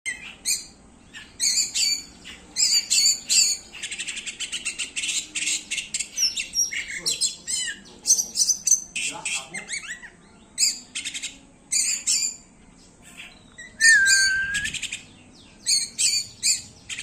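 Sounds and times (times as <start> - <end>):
bird singing whistled notes: 13.2 - 17.0.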